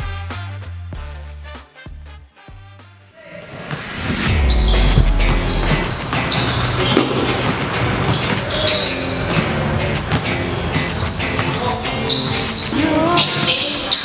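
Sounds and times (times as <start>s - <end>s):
sneaker squeaks: 5.8s - 14.0s
basketballs bouncing on court: 5.9s - 11.8s.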